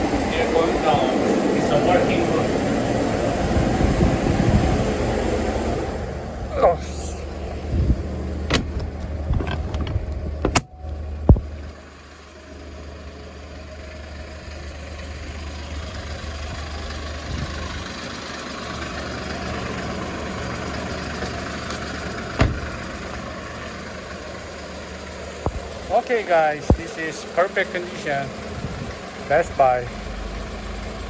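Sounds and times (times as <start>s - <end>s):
steady rushing noise: 0.0s - 9.9s
diesel truck engine idling: 0.0s - 31.0s
thump: 8.5s - 10.7s, 22.4s - 22.8s.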